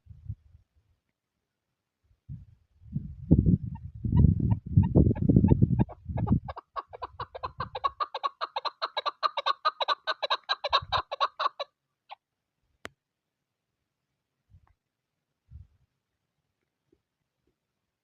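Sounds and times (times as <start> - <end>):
wind gusts: 0.0 - 0.6, 2.2 - 8.2, 10.7 - 11.1
partridge clucking call: 5.8 - 11.7.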